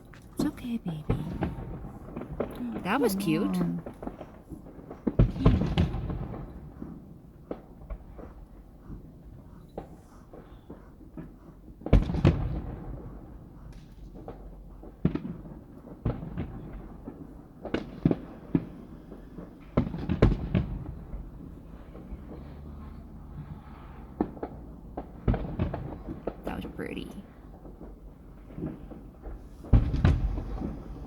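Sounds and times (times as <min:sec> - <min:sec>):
fireworks bursting with echoes: 0:00.0 - 0:04.0, 0:10.6 - 0:22.5, 0:23.8 - 0:31.0.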